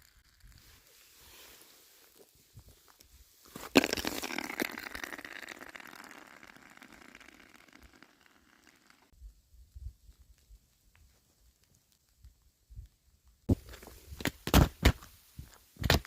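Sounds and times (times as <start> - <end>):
ice shards crackling and tinkling: 0.0 - 9.1
ice cracking: 3.5 - 9.1.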